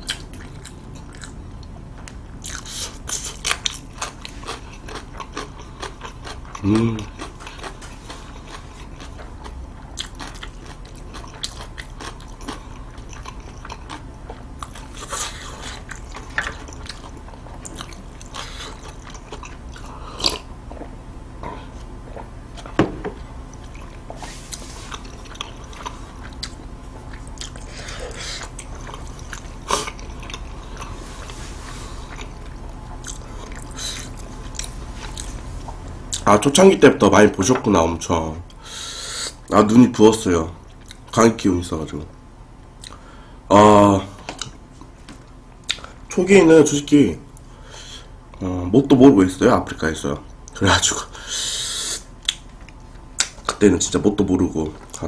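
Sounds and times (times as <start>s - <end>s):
chewing food: 0.0s - 22.8s, 23.4s - 36.3s, 40.7s - 41.2s, 42.8s - 43.0s, 44.3s - 46.0s, 52.2s - 53.6s
soft mouth clicks: 45.7s - 45.9s.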